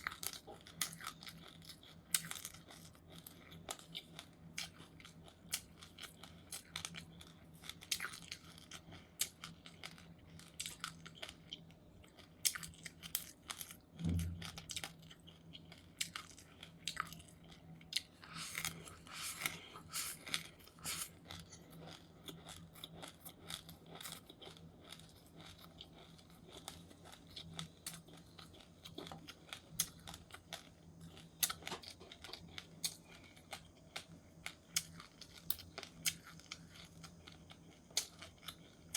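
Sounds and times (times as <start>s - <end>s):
chewing crunchy seeds: 0.0s - 38.9s
faint steady hum: 0.0s - 38.9s
low thump: 14.0s - 14.6s.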